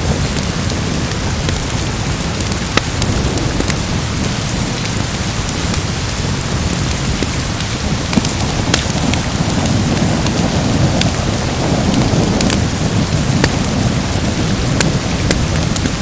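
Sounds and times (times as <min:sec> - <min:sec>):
deep rumble: 0:00.0 - 0:16.0
heavy rain: 0:00.0 - 0:16.0
sharp crackles: 0:00.0 - 0:16.0.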